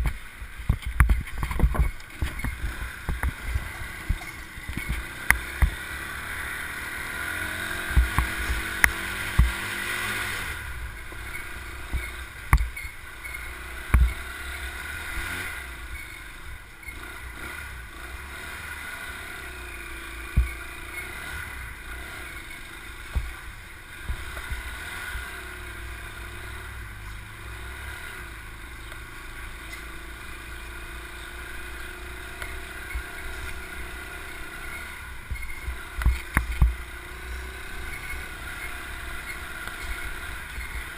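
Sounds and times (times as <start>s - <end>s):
wind rumble on microphone: 0.0s - 5.8s
small motorbike engine running: 0.0s - 40.9s
sharp thumps: 7.8s - 9.8s.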